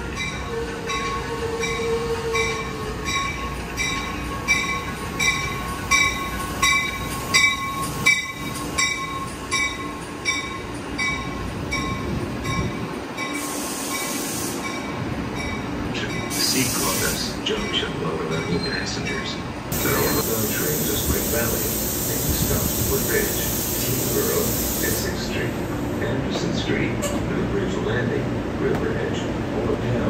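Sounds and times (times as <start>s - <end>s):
air hiss: 16.3s - 17.4s, 19.7s - 25.6s.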